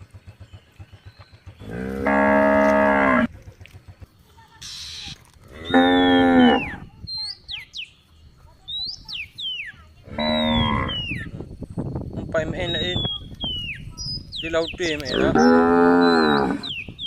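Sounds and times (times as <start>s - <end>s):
cow mooing: 1.6s - 3.3s, 5.4s - 6.9s, 10.1s - 11.1s, 15.1s - 16.7s
bird whistled calls: 4.6s - 8.0s, 8.6s - 9.8s, 10.4s - 11.4s, 12.6s - 15.4s, 16.0s - 17.0s.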